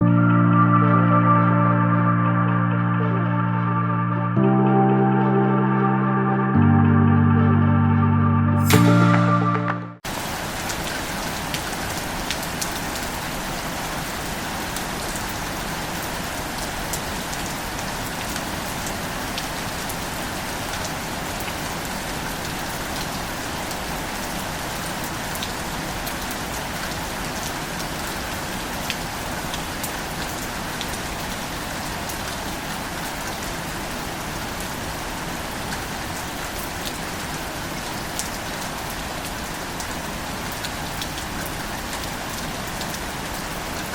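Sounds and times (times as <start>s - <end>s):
rain hiss: 10.1s - 43.9s.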